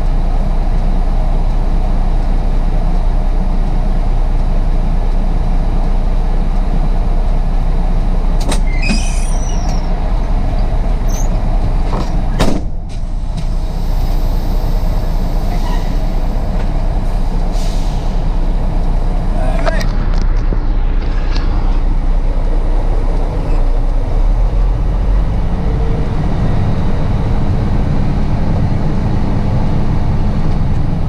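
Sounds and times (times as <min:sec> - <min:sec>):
diesel truck engine running: 0:00.0 - 0:31.0
short high squeal: 0:08.6 - 0:09.9, 0:11.1 - 0:11.4, 0:15.5 - 0:16.2.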